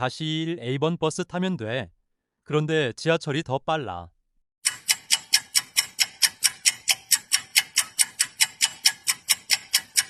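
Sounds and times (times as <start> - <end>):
fast even ticking: 4.6 - 10.0.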